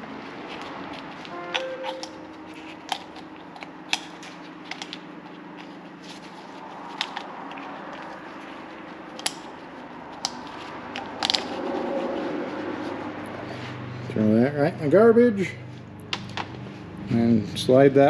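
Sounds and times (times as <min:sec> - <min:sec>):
hand tools clicking and tapping: 0:00.5 - 0:05.8, 0:06.7 - 0:11.5.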